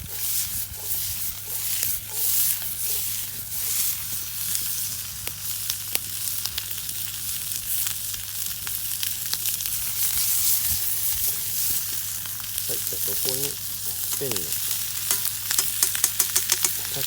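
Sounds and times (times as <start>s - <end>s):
food sizzling in frying pan: 0.0s - 17.0s
sharp pops of frying: 13.6s - 17.0s.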